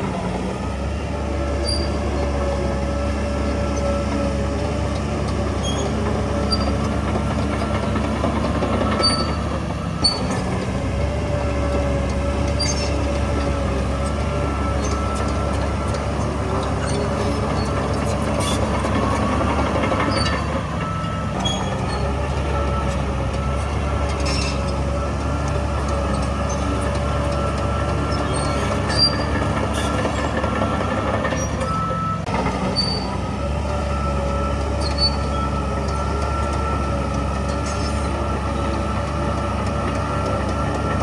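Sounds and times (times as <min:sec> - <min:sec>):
bulldozer diesel engine humming: 0:00.0 - 0:41.0
wavering squeal: 0:01.6 - 0:02.3, 0:34.0 - 0:36.7.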